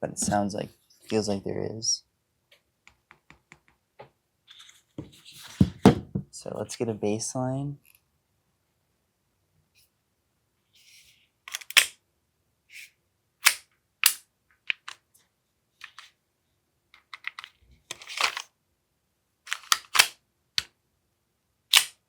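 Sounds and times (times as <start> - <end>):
airsoft pistol clicks: 13.4 - 14.2, 19.5 - 20.2, 21.7 - 22.0.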